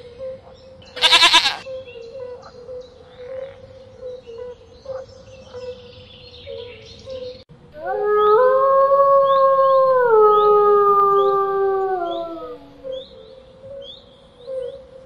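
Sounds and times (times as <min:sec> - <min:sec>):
wolf howling: 0:07.8 - 0:12.9.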